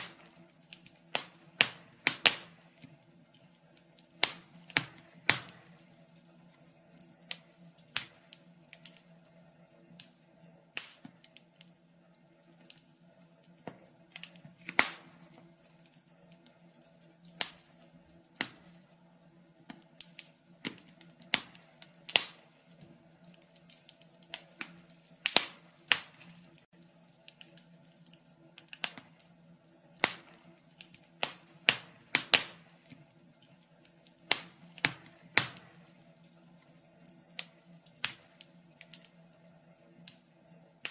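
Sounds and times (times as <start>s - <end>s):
logs crackling and popping: 0.0s - 40.9s.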